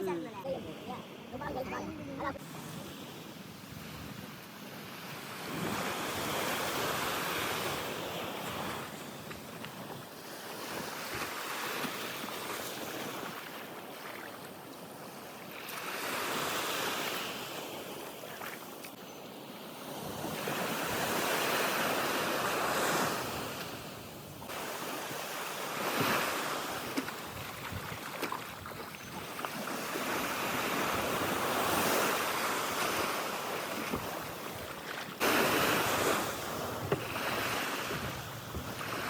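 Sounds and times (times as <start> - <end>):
sea water washing: 19.8 - 39.0
wind buffeting microphone: 27.1 - 30.0, 35.3 - 39.0.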